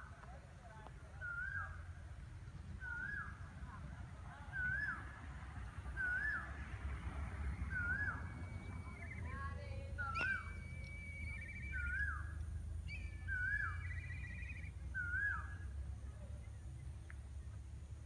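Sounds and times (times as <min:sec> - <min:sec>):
bird whistling rising and falling: 0:02.8 - 0:03.4, 0:04.5 - 0:05.2, 0:05.9 - 0:06.6, 0:07.4 - 0:15.7
bird trilling: 0:07.5 - 0:12.3, 0:12.9 - 0:15.7.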